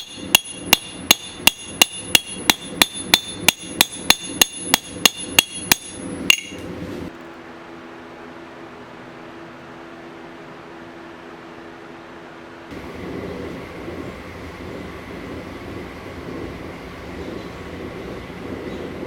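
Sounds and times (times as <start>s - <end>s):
hammer striking metal on anvil: 0.0s - 6.7s
steady low hum: 0.0s - 19.0s.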